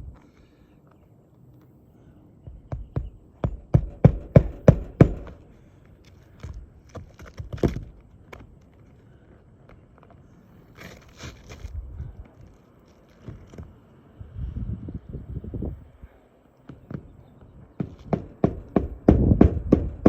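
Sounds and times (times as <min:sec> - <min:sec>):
hammer driving nails: 0:02.5 - 0:05.4, 0:17.8 - 0:20.0.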